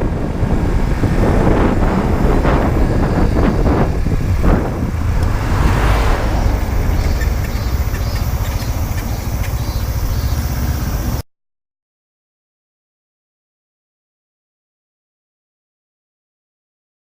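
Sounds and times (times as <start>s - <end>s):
motorcycle engine running: 0.0s - 11.2s
wind and road noise: 0.0s - 11.2s.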